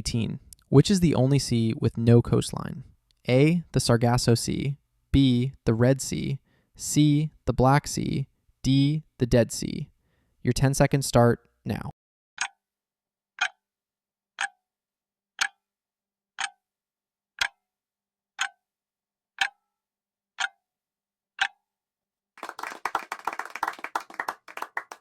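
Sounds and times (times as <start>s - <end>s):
clock ticks: 12.4s - 12.6s, 13.4s - 13.6s, 14.4s - 14.6s, 15.4s - 15.6s, 16.4s - 16.6s, 17.4s - 17.6s, 18.4s - 18.6s, 19.4s - 19.6s, 20.4s - 20.6s, 21.4s - 21.6s
clapping: 22.4s - 25.0s.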